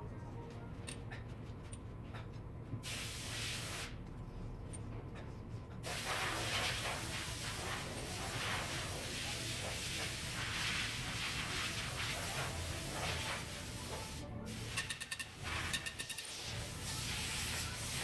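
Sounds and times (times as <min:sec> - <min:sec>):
pressurised spray hissing: 0:05.9 - 0:14.8.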